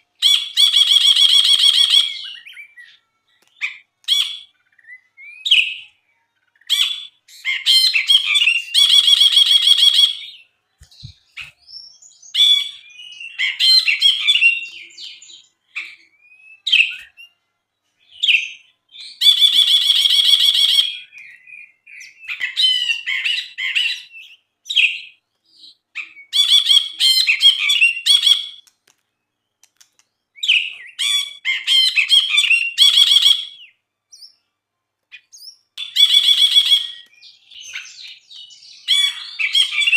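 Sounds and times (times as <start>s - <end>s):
bird singing with chattering trills: 0.0s - 17.4s, 35.1s - 39.9s.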